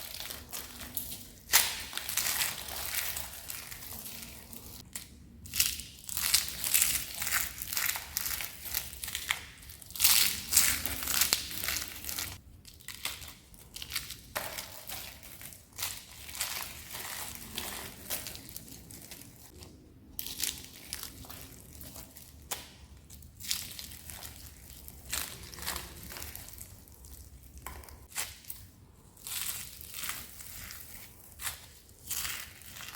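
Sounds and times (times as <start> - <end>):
crispy soap crunching: 0.0 - 19.6.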